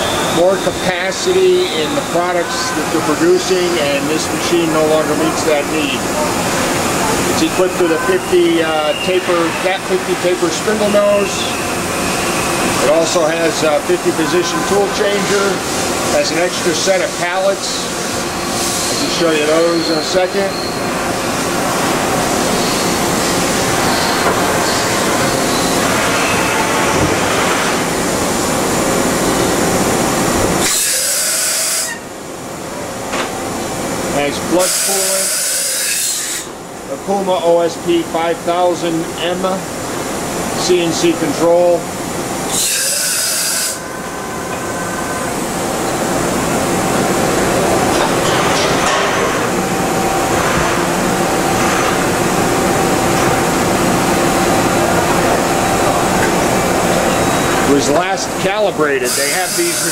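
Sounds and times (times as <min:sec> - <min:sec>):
machining center humming: 0:00.0 - 0:59.9
coolant hiss: 0:30.6 - 0:32.0, 0:34.1 - 0:41.9, 0:57.0 - 0:59.9.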